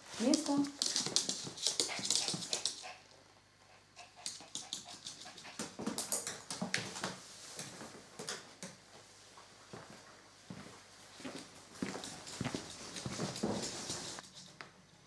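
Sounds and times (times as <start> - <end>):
dog claws clicking on wooden floor: 0.2 - 2.9
footsteps: 9.7 - 14.2.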